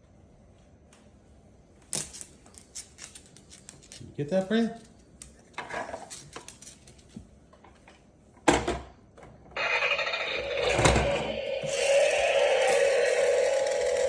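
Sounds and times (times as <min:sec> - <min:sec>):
small electric motor whirring: 0:09.6 - 0:14.0.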